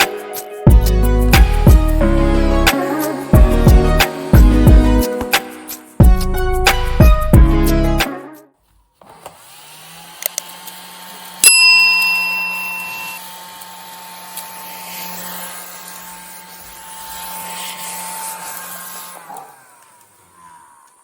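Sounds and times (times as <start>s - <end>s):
small vacuum motor humming: 9.0s - 21.0s
sharp ringing clink: 11.4s - 13.2s.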